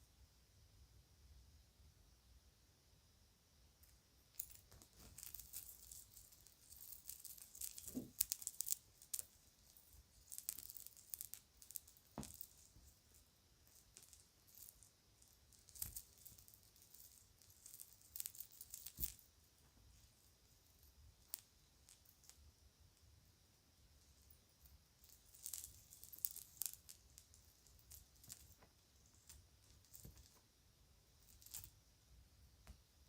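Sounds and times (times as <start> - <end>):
jewelry clicking and rattling: 3.8 - 22.4, 24.0 - 30.5, 31.1 - 31.8.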